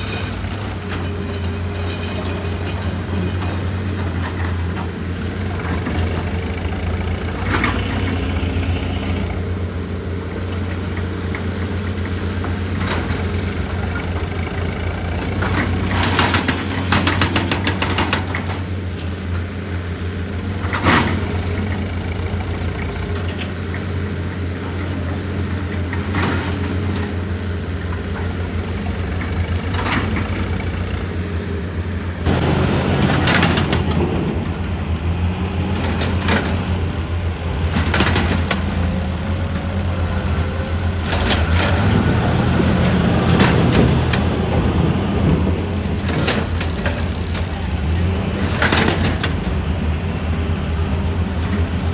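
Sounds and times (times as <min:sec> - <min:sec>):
diesel excavator running: 0:00.0 - 0:51.9
knocks and clanks on rock: 0:37.6 - 0:39.7.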